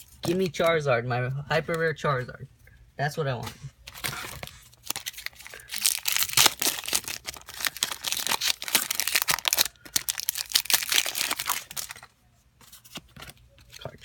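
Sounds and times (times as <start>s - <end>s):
foil wrapper tearing and crinkling: 4.0s - 12.1s.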